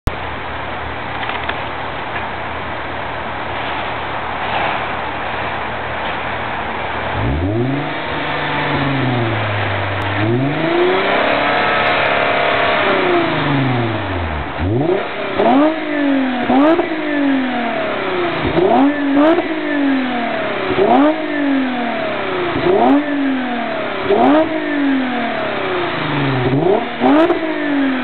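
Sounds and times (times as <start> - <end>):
car engine revving: 6.8 - 28.0.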